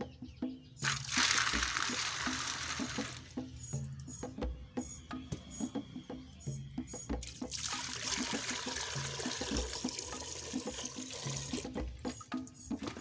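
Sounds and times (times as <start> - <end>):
background music with steady beat: 0.0 - 13.0
water pouring rush: 0.8 - 3.3, 7.3 - 13.0.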